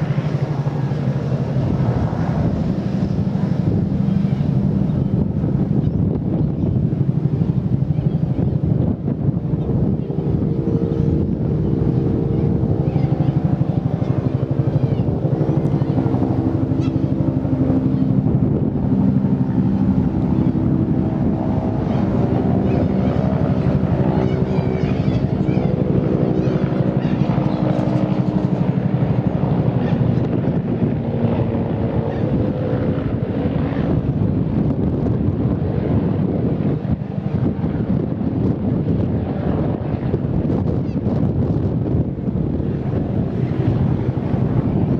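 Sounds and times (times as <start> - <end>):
helicopter engine and gearbox tone: 0.0 - 44.9
helicopter rotor beating: 0.0 - 44.9
wind buffeting microphone: 0.0 - 44.9.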